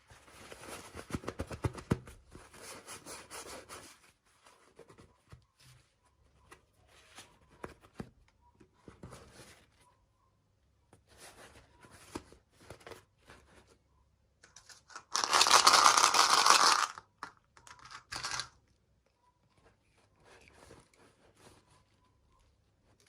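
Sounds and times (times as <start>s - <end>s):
wrapper rustling and crinkling: 14.5s - 17.0s, 17.7s - 18.5s
packaging tearing: 14.9s - 17.0s.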